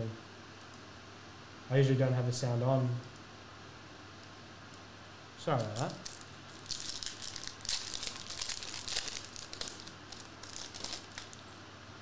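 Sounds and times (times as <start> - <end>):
foil wrapper crinkling and tearing: 5.6 - 11.4.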